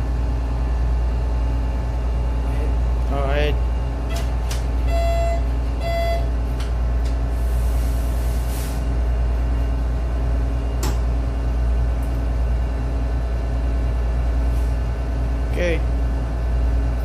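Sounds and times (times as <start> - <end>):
ship diesel engine droning: 0.0 - 17.0
short beeps: 4.9 - 6.3.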